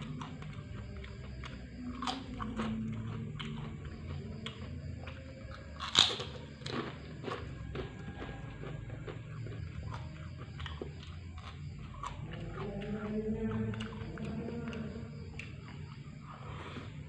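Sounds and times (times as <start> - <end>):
chewing crunchy food: 0.0 - 17.0.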